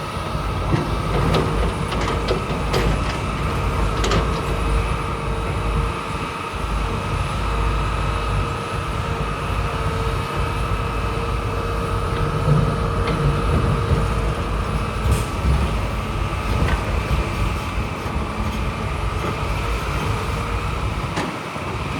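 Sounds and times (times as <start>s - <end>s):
diesel engine rumble: 0.0s - 21.9s.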